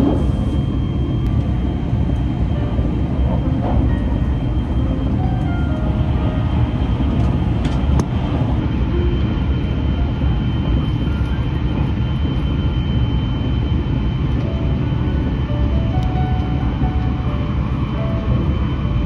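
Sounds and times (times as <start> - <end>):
passing train whooshing: 0.0 - 11.0
train wheels rumbling on rail: 0.0 - 19.0.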